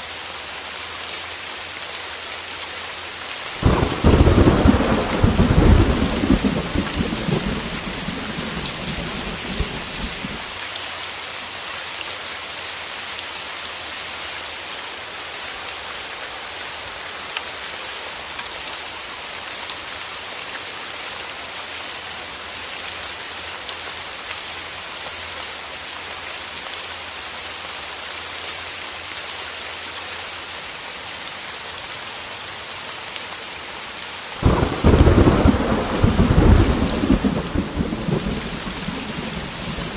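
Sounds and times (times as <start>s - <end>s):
heavy rain on a window: 0.0s - 39.9s
thunder rumbling: 3.6s - 10.5s, 34.4s - 39.9s.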